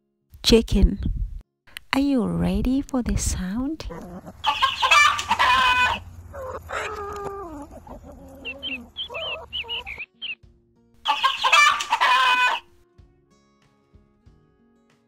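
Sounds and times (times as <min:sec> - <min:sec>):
chickens clucking: 0:03.9 - 0:10.4, 0:11.0 - 0:12.7
loud drawn-out chicken call: 0:04.4 - 0:07.4, 0:11.1 - 0:12.7.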